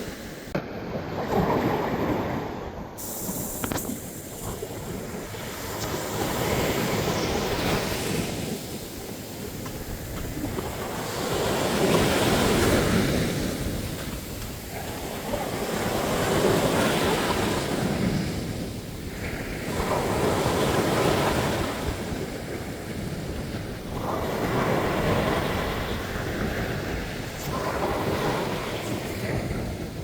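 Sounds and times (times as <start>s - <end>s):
sea waves breaking on beach: 0.0s - 30.0s
wind on microphone: 0.0s - 30.0s.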